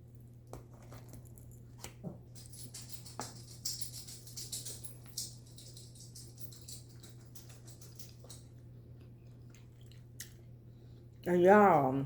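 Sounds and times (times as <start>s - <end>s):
person chewing food: 8.1s - 11.2s.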